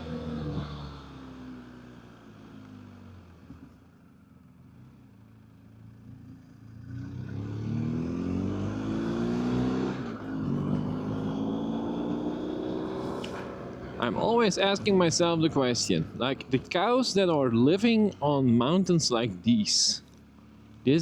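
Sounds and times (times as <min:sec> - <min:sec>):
motorcycle engine revving: 0:06.0 - 0:14.4.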